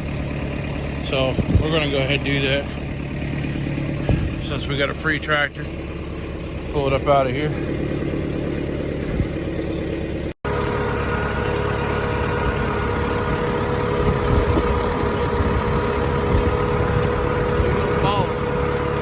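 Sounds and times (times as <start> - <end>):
tractor engine running: 0.0 - 19.0
steady whine: 10.7 - 19.0.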